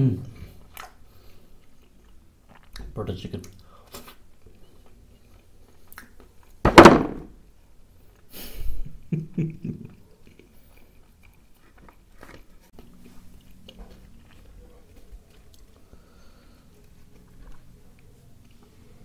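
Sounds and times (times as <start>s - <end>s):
chewing: 0.4s - 6.6s, 9.9s - 19.0s
loud thump: 6.7s - 7.4s
flatbread tearing and rustling: 11.4s - 18.0s.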